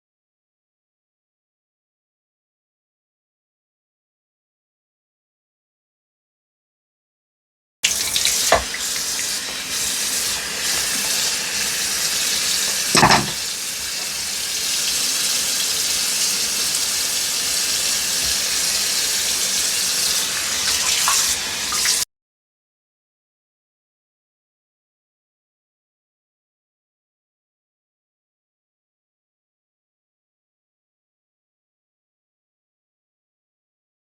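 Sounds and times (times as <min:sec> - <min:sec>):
hand shower spraying water: 0:07.8 - 0:22.0.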